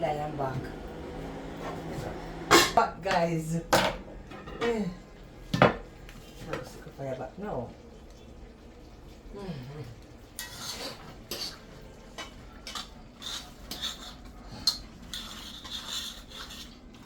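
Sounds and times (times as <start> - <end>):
metal spoon scraping a pot: 10.4 - 11.6, 12.2 - 16.8.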